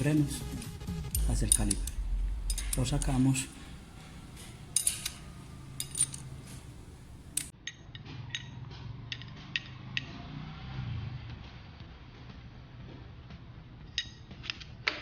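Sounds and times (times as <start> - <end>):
metallic clicks of wrench and bolt: 4.0 - 8.5.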